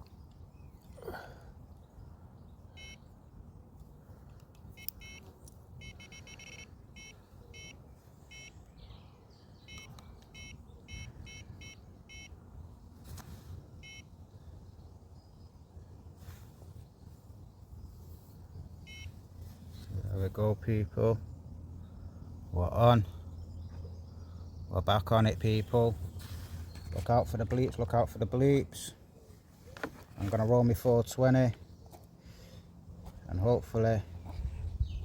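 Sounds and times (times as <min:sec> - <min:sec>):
bite alarm beeping: 0:02.8 - 0:03.1, 0:04.8 - 0:08.7, 0:09.6 - 0:12.4, 0:13.8 - 0:14.1, 0:18.9 - 0:19.2.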